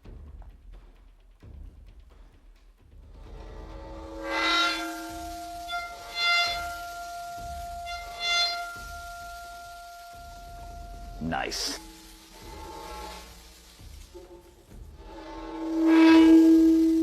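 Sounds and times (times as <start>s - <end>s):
bowed metal plate squealing: 3.3s - 17.0s
metal plate ringing: 3.5s - 17.0s.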